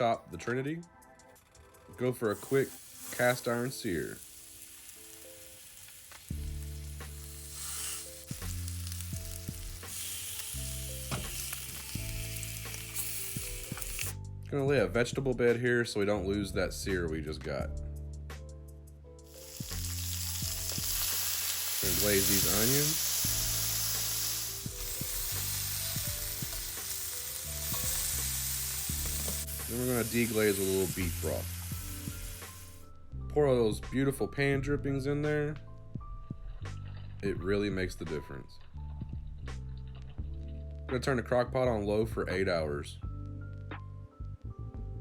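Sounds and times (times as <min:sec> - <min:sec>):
meat sizzling in a pan: 0:02.2 - 0:14.2, 0:19.3 - 0:32.8
sharp crackles: 0:02.2 - 0:14.2, 0:19.3 - 0:32.8
background music with bass line: 0:06.3 - 0:21.1, 0:21.8 - 0:45.0.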